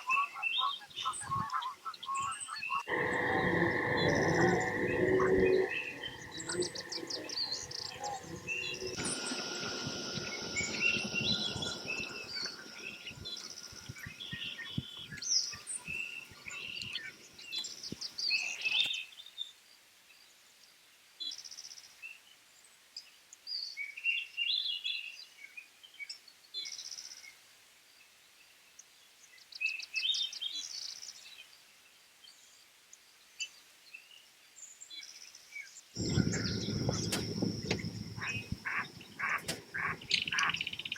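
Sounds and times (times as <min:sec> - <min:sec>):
birds chirping: 0:00.0 - 0:18.9, 0:36.0 - 0:40.9
low rumbling noise: 0:02.9 - 0:15.2, 0:36.0 - 0:40.9.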